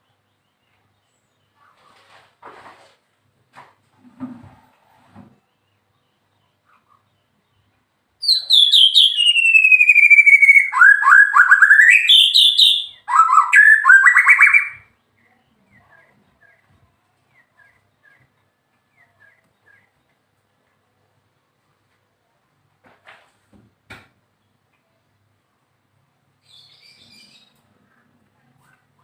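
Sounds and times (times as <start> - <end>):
bird singing clear whistles: 8.2 - 14.9.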